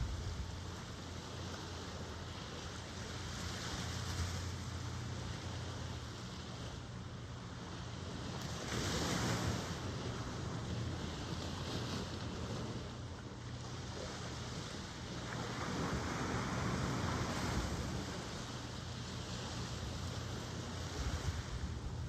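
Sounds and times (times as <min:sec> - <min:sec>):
wave breaking: 0:00.0 - 0:04.9
ocean waves washing: 0:00.0 - 0:22.0.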